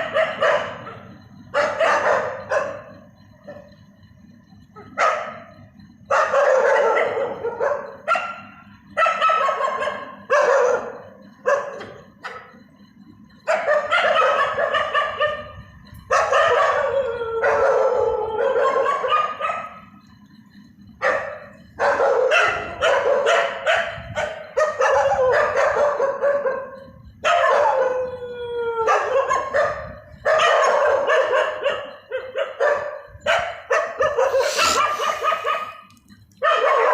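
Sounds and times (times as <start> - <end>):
dog yelping: 0.0 - 2.9, 6.1 - 12.5, 13.4 - 19.8, 21.0 - 36.9
dog howling: 16.2 - 19.7, 24.7 - 32.9.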